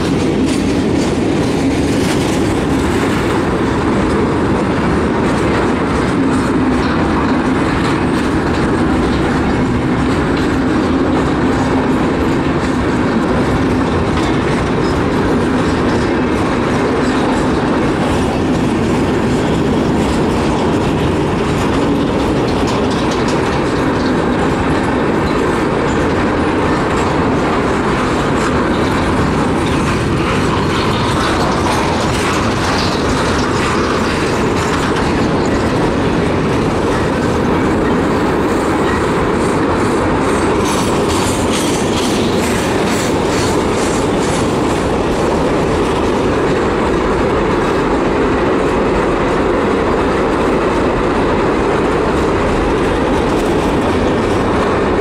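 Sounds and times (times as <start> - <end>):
freight train wheels rumbling: 0.0 - 55.0
train clattering: 0.0 - 55.0
wheels clacking over rail joints: 0.0 - 55.0.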